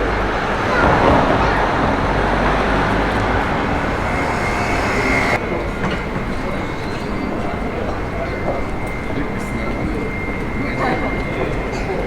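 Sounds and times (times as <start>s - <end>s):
vehicle rumble: 0.0s - 5.6s
faint high whine: 3.4s - 5.6s.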